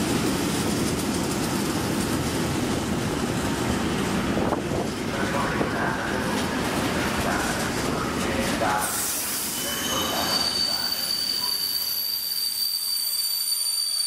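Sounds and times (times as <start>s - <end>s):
train wheels rumbling on track: 0.0s - 14.0s
high wheel squeal: 9.0s - 14.0s.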